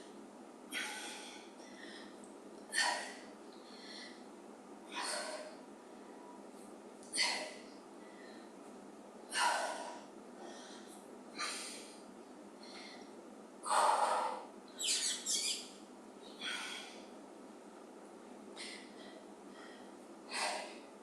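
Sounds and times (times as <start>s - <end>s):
woman breathing hard: 0.7s - 4.3s, 4.9s - 6.4s, 9.3s - 15.0s, 16.3s - 17.2s, 18.6s - 21.0s.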